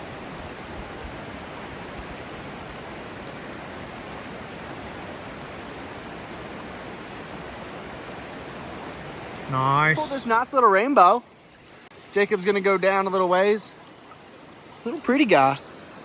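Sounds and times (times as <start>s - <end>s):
stream water flowing: 0.0s - 16.0s.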